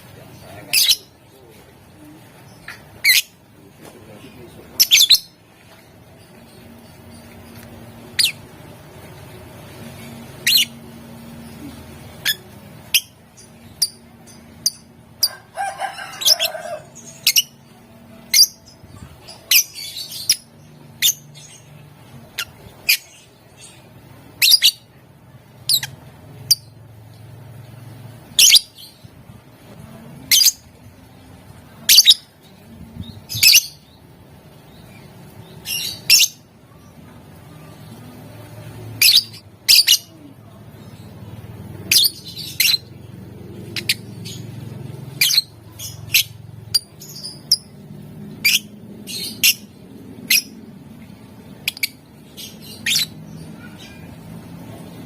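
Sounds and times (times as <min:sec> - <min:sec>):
lovebird chirping: 0:04.8 - 0:05.4, 0:06.2 - 0:08.6, 0:09.2 - 0:15.3, 0:16.3 - 0:24.9, 0:25.6 - 0:26.8, 0:31.8 - 0:32.3, 0:33.0 - 0:41.2, 0:41.8 - 0:43.0, 0:43.6 - 0:50.8, 0:51.4 - 0:54.2.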